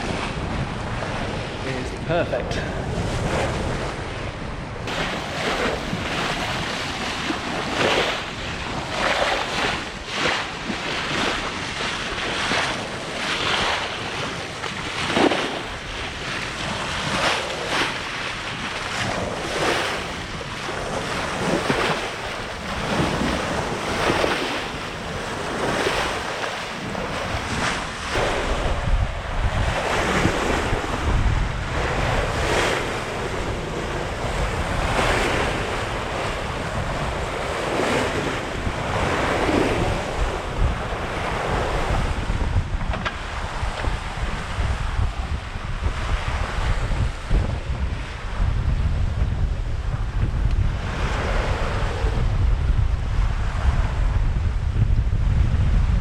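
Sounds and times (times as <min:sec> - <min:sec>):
sea rushing past hull: 0:00.0 - 0:56.0
wind buffeting microphone: 0:00.0 - 0:56.0.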